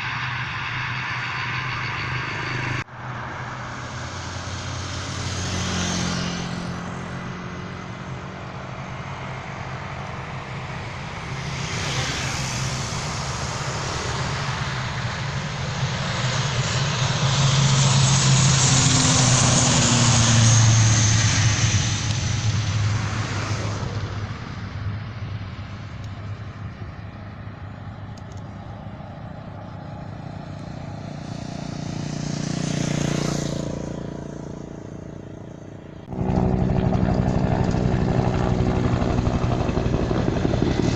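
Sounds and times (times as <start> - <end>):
propeller aircraft engine: 0.0 - 40.9.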